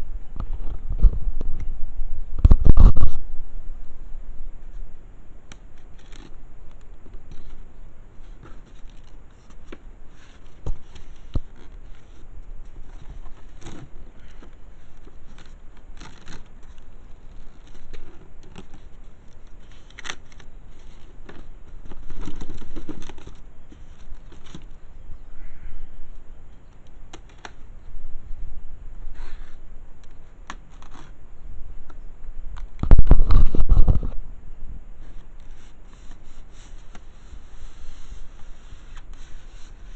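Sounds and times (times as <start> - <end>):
cardboard box being handled: 8.2 - 24.8.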